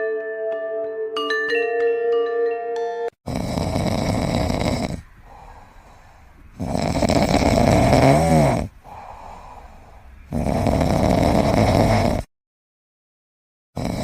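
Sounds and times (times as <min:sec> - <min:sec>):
pet snoring loudly: 0:03.2 - 0:12.3, 0:13.8 - 0:14.0.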